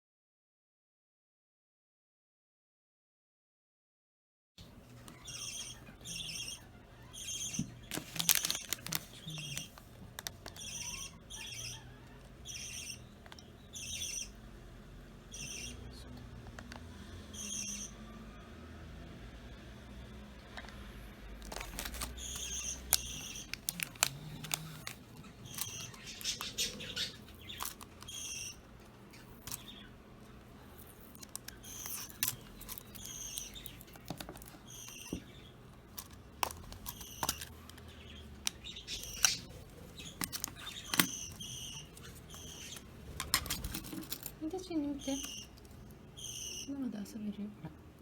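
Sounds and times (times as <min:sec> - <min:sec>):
budgerigars chirping: 0:05.1 - 0:09.8, 0:10.5 - 0:14.4, 0:15.3 - 0:16.0, 0:17.3 - 0:18.0, 0:21.6 - 0:30.0, 0:30.6 - 0:35.6, 0:36.5 - 0:43.8, 0:44.6 - 0:46.9.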